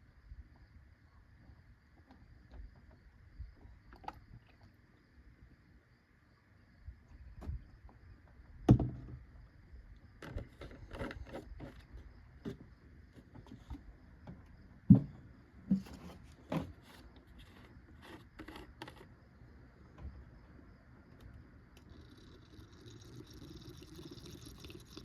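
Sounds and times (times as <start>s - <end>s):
plastic jug knocking: 8.7s - 9.2s, 14.9s - 16.8s.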